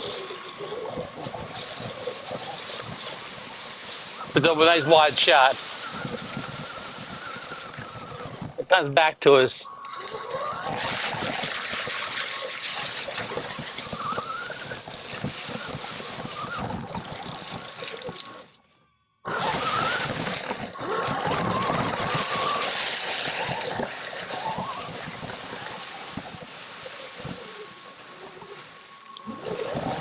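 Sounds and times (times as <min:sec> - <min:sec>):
rustling of dry leaves: 0:00.0 - 0:08.6, 0:09.3 - 0:18.6, 0:19.3 - 0:30.0
electric motor whining: 0:09.7 - 0:18.6, 0:19.3 - 0:30.0.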